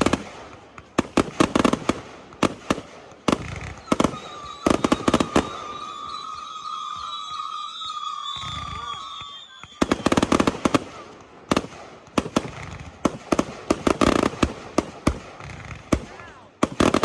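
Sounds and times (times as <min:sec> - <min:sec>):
fireworks bangs and crackles: 0:00.0 - 0:17.0
firework whistle: 0:03.4 - 0:11.0.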